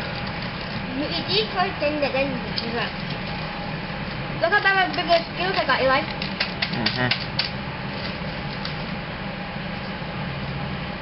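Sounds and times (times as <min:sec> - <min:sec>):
train car hum and hiss: 0:00.0 - 0:11.0.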